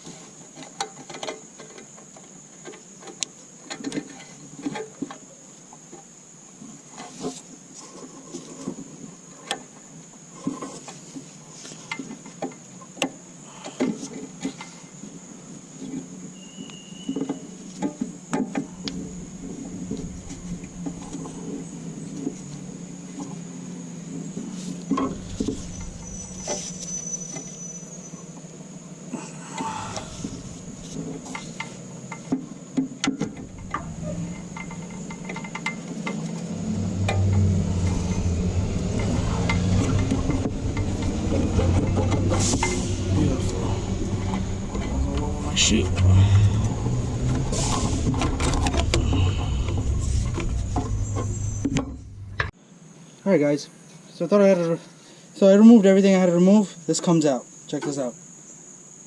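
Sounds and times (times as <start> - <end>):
steady low hum: 18.6 - 26.9, 28.2 - 52.9
tools clicking and knocking on engine: 29.5 - 42.8, 46.2 - 52.6
metal engine parts handled: 33.0 - 36.4.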